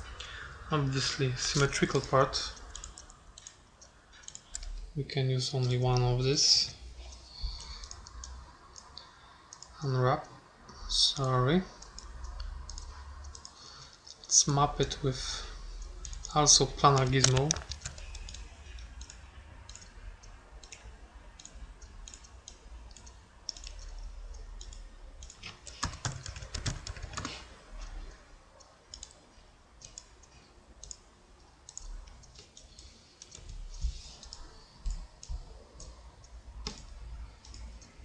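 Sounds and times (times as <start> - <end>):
mouse and keyboard clicks: 1.5 - 4.8, 16.9 - 27.9, 36.6 - 38.0.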